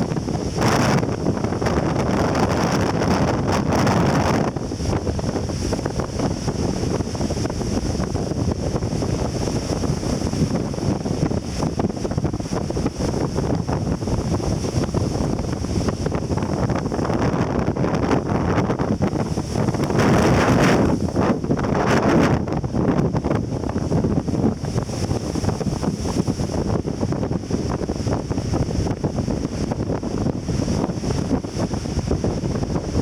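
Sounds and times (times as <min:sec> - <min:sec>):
surf breaking on beach: 0:00.0 - 0:33.0
wind buffeting microphone: 0:00.0 - 0:33.0.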